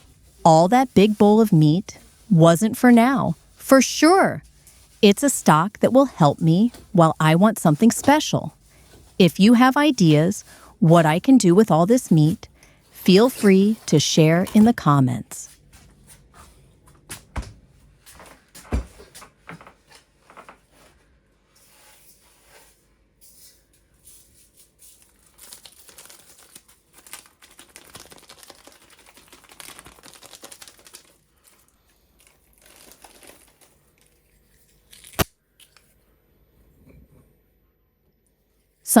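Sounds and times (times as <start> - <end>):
crinkling and rustling: 7.6 - 36.0.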